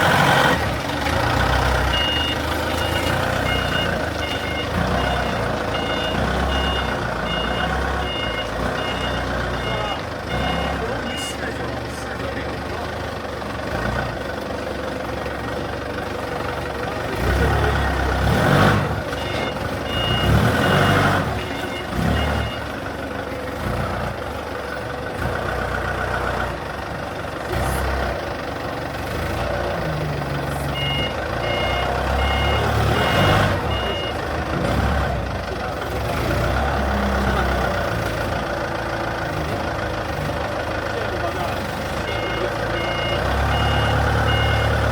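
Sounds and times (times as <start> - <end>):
excavator diesel engine running: 0.0 - 44.9
travel alarm beeping: 1.9 - 11.4, 19.1 - 23.0, 30.6 - 34.2, 42.0 - 44.8.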